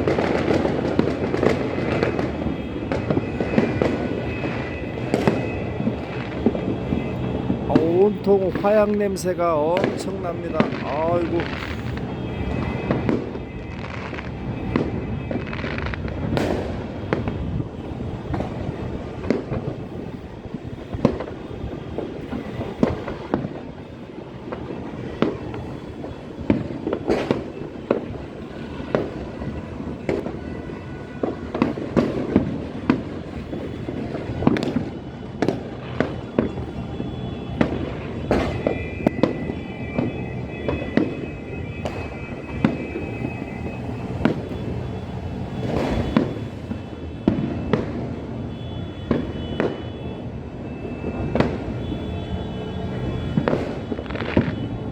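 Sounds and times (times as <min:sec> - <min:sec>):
sharp firecracker bangs: 0:00.0 - 0:23.9, 0:24.5 - 0:54.9
fireworks crackling and rumbling: 0:00.0 - 0:54.9.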